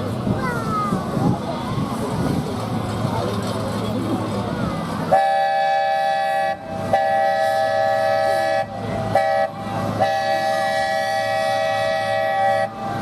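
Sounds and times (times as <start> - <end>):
train rumbling: 0.0 - 13.0
multi-chime train horn blasts: 5.1 - 13.0.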